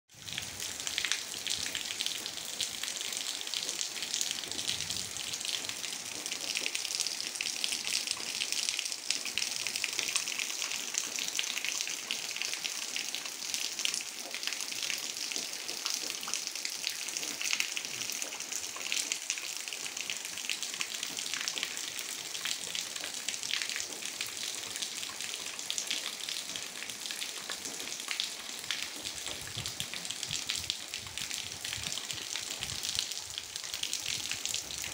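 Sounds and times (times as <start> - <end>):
gentle rain: 0.1 - 34.9.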